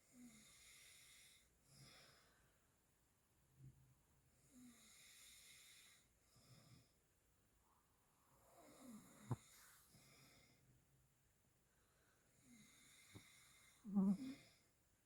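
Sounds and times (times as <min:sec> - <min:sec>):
dog snoring faintly: 0:12.4 - 0:14.6.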